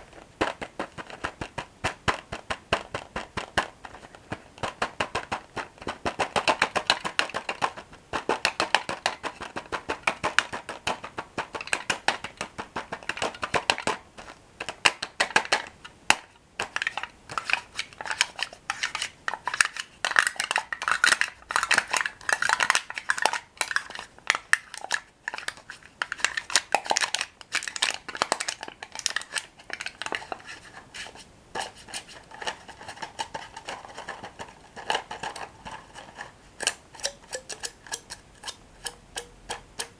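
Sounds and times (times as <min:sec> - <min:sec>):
crunching bread sticks: 0:16.9 - 0:39.9.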